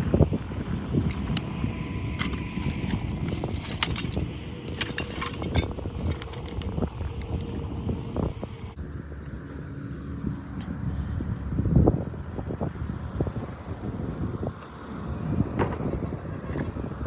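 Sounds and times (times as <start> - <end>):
wind noise on microphone: 0.0 - 17.0
small hard objects clinking: 1.1 - 1.5, 2.1 - 7.6.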